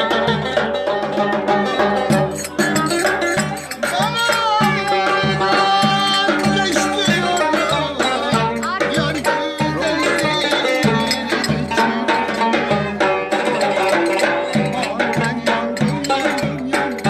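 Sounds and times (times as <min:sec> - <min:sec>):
folk dance melody instrument: 0:00.0 - 0:17.0
hand-drum rhythm: 0:00.0 - 0:17.0.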